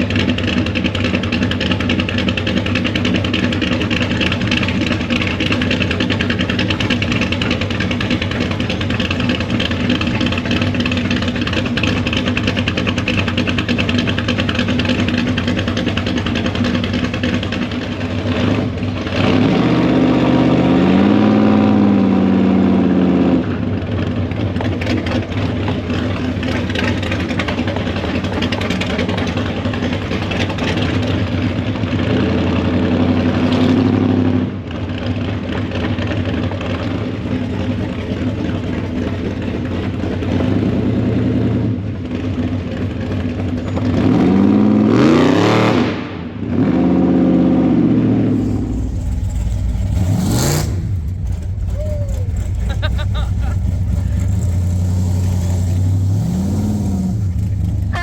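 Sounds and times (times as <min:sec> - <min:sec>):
car engine revving: 0:48.0 - 0:58.0.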